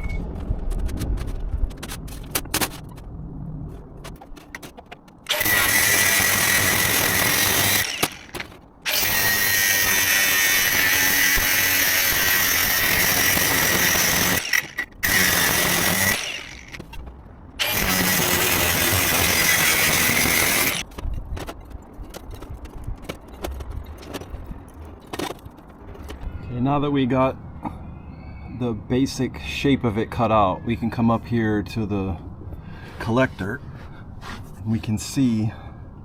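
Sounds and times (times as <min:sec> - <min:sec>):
power tool cutting steel sheet: 0:05.3 - 0:16.8, 0:17.6 - 0:20.8.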